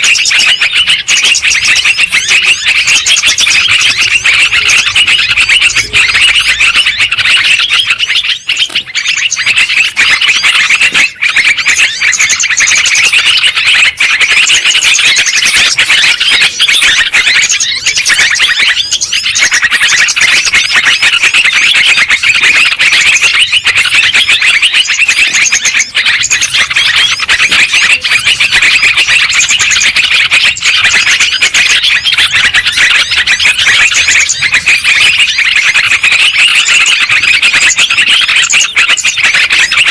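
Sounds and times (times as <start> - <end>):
flock of birds chattering: 0.0 - 39.9.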